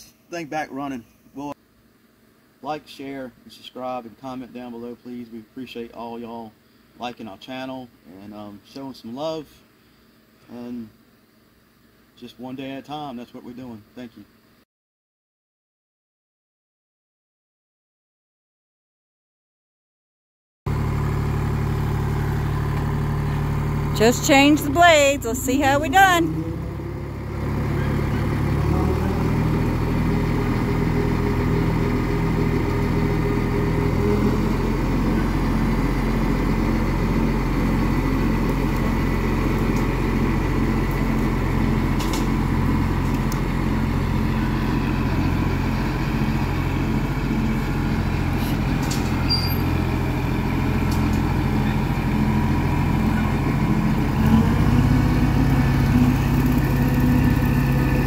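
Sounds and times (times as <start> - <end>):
tractor diesel engine running: 20.7 - 58.0.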